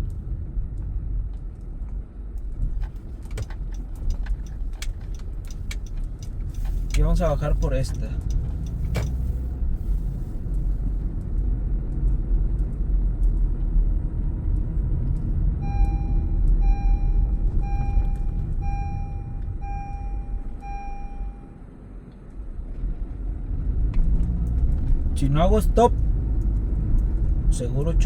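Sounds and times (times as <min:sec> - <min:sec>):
car road and engine rumble: 0:00.0 - 0:28.0
beeps: 0:15.6 - 0:21.6.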